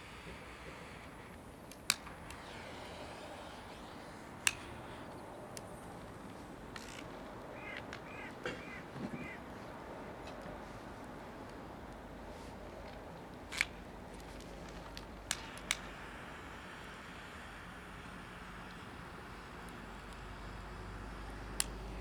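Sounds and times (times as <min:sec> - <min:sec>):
sharp clicks: 0:00.8 - 0:08.2, 0:21.5 - 0:22.0
bird calling: 0:06.8 - 0:09.7.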